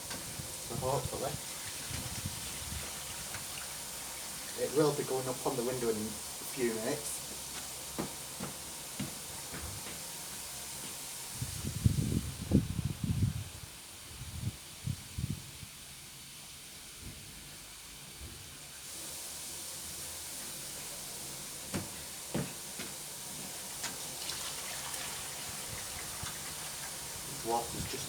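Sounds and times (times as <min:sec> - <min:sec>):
water running into washing machine: 0:00.0 - 0:11.7, 0:18.4 - 0:28.0
light knocks: 0:08.0 - 0:10.0.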